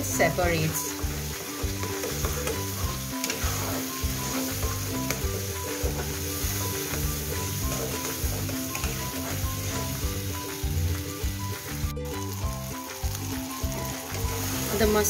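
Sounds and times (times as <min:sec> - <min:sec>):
paste sizzling in oil: 0:00.0 - 0:15.0
soft background music: 0:00.0 - 0:15.0
metal spatula scraping pan: 0:01.4 - 0:09.9.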